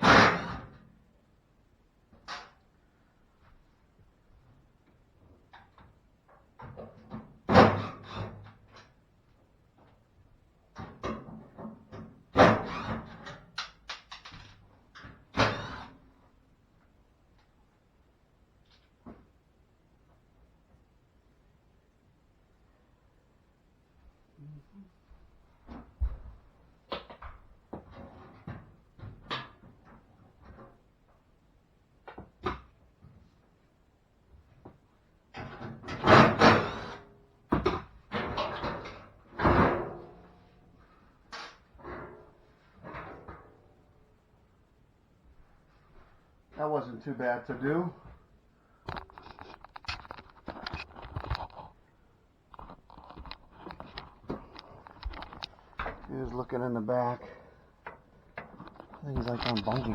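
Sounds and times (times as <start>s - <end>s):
handling clicks and scrapes: 48.9s - 51.9s, 52.5s - 56.4s, 58.4s - 59.9s.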